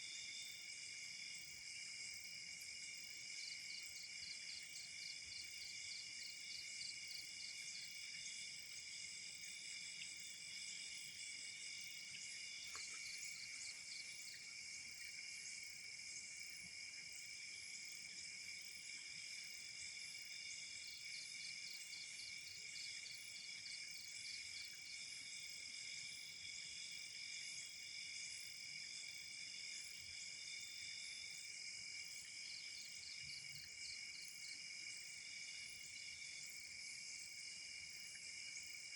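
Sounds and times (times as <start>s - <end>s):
crickets trilling: 0.0s - 25.8s
cricket pulsing chirp: 0.0s - 38.9s.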